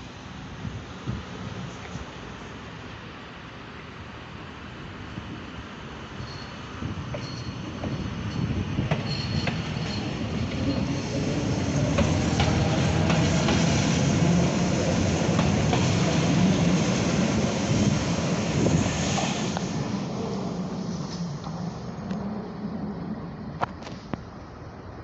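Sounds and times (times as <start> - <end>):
electric train humming: 6.2 - 25.0
wheels clicking over rail joints: 7.1 - 11.0, 11.8 - 13.7.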